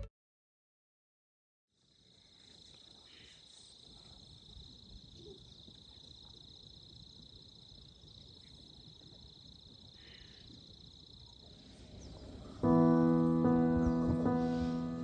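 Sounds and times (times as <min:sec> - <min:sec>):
insects trilling: 0:01.8 - 0:15.0
low outdoor rumble: 0:10.7 - 0:15.0.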